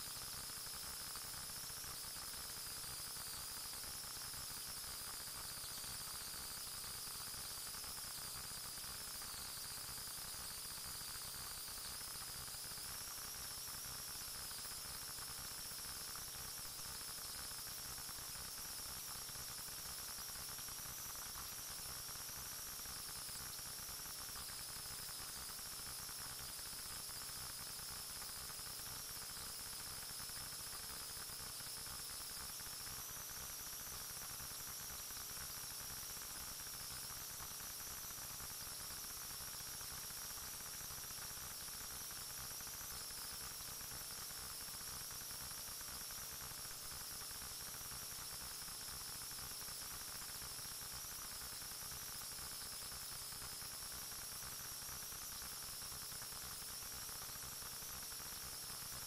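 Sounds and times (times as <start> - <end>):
static hiss: 0.0 - 13.0.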